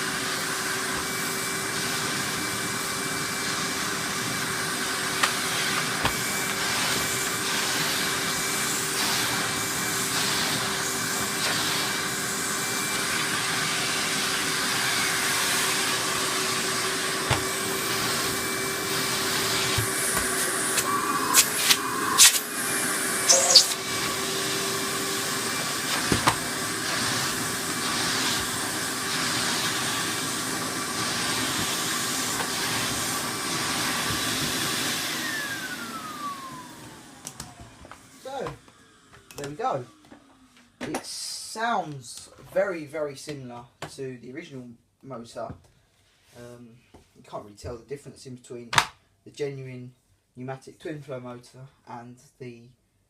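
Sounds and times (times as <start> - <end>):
vacuum cleaner whining: 0.0 - 41.9.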